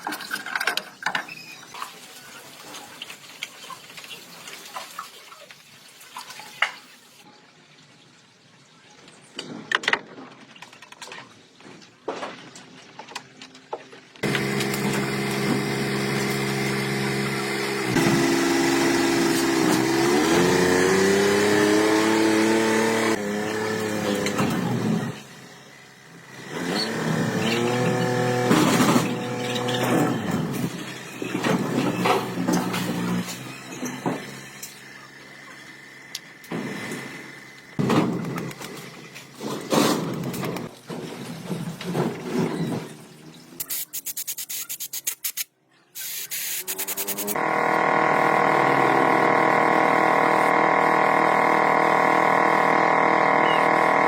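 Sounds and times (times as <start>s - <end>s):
engine running and revving: 14.2s - 25.4s, 26.2s - 34.7s, 46.6s - 54.0s.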